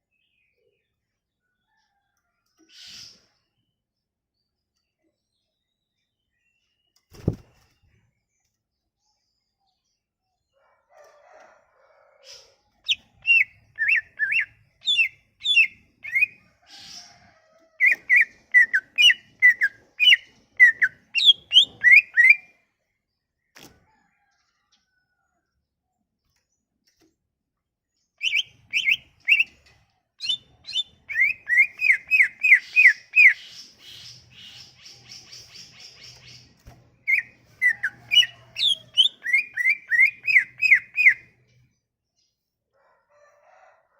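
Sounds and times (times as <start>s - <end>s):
bird whistling song: 12.9s - 16.4s, 17.8s - 22.5s, 28.2s - 29.6s, 30.2s - 36.4s, 37.0s - 41.2s.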